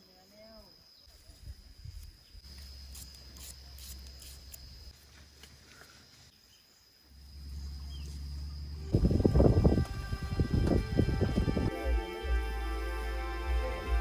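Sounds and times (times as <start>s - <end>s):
high insect drone: 0.0s - 14.0s
low rumble: 7.2s - 11.7s.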